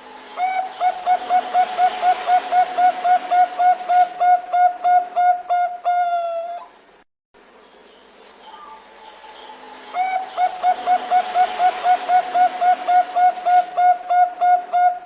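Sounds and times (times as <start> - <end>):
dove cooing: 0.4 - 6.7, 8.5 - 15.0.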